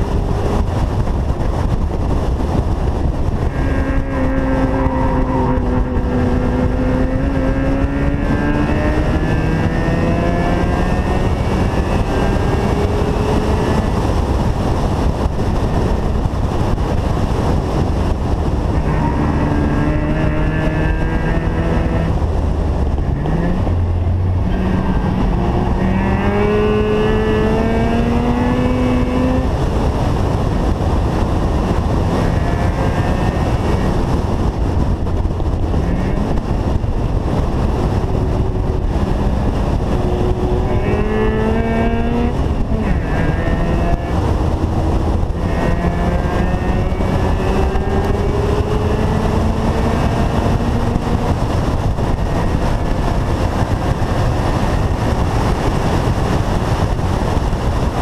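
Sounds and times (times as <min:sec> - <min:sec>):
rotary engine accelerating: 0:00.0 - 0:58.0
wind and road noise: 0:00.0 - 0:58.0.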